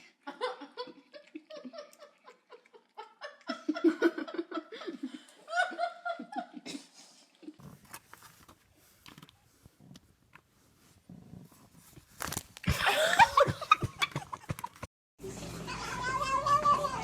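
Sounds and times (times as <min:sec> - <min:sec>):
faint rustling: 0:07.6 - 0:14.8.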